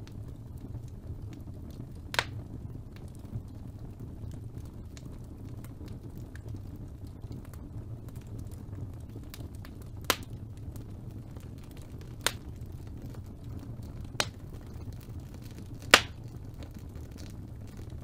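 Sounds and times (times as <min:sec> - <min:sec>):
faint crackling: 0:14.2 - 0:16.4.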